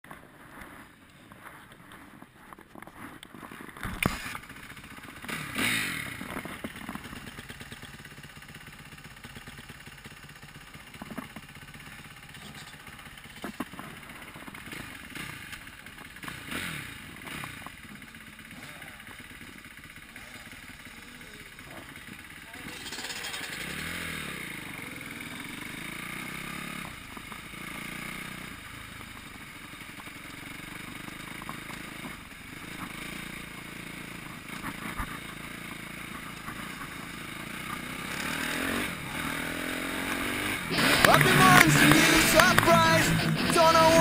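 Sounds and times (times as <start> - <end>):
motocross bike engine revving: 3.8 - 44.0
knocks and rattles: 22.6 - 23.7.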